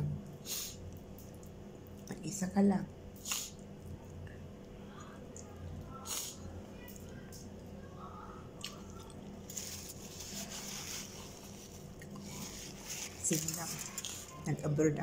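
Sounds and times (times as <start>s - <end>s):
person chewing: 8.6s - 13.2s
paper tissue rustling: 9.4s - 14.7s.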